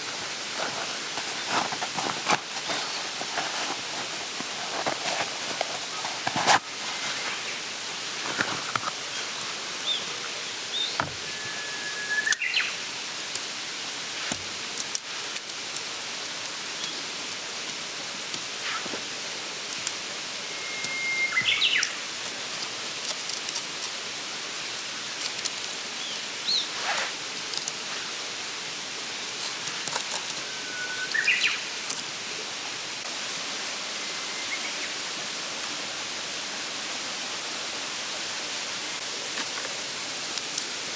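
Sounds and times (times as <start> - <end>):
stream rushing: 0.0 - 40.9
small bird whistling song: 10.7 - 12.8, 20.4 - 22.0, 30.4 - 31.7.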